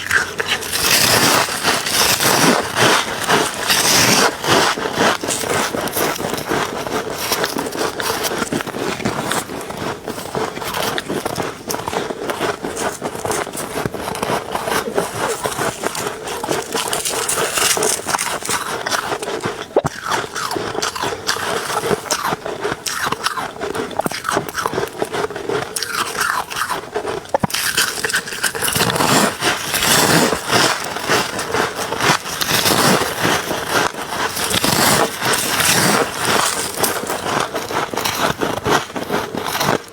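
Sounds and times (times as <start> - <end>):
ice being crunched and scraped: 0.0 - 39.9.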